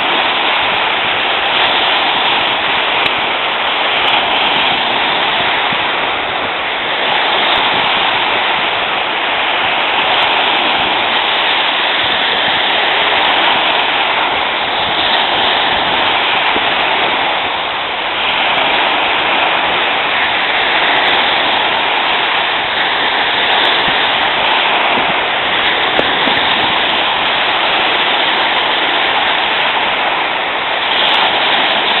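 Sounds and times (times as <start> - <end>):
steady rushing noise: 0.0 - 32.0.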